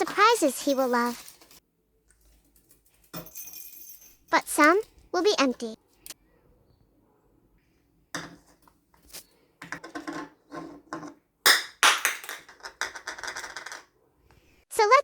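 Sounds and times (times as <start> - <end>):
small objects clicking and clattering: 0.0 - 4.2, 8.2 - 13.9.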